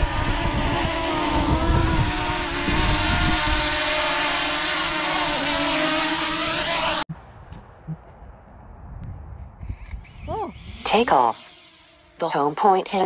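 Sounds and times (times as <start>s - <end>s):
wind rumble on microphone: 0.0s - 6.6s, 7.2s - 10.9s
drone propellers buzzing: 0.0s - 7.1s, 9.6s - 13.0s.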